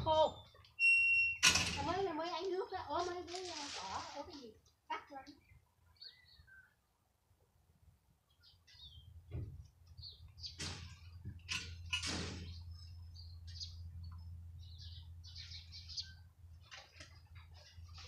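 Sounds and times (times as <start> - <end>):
small birds chirping: 0.0 - 1.0, 1.9 - 7.2, 8.2 - 18.0
low steady hum: 6.6 - 18.0.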